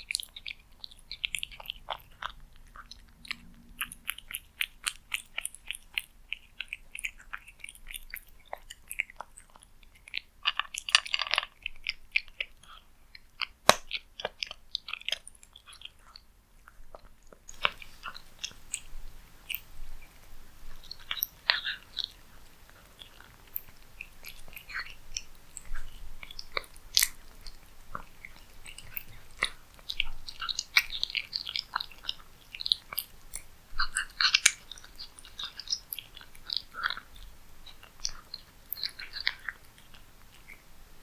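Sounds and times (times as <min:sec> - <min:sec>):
cat chewing food: 0:00.0 - 0:41.0.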